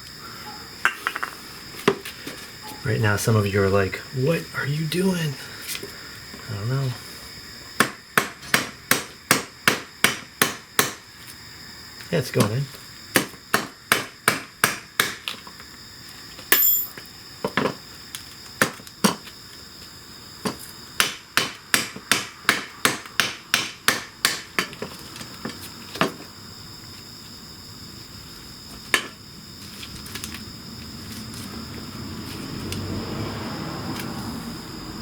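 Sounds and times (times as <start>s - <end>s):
hammer striking metal part: 16.6s - 16.9s.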